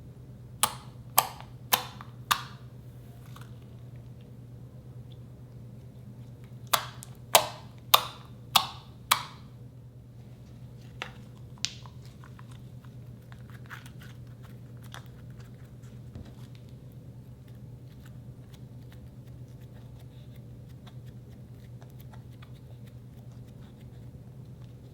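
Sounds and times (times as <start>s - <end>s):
steady low hum: 0.0s - 24.9s
slime popping: 6.7s - 9.4s.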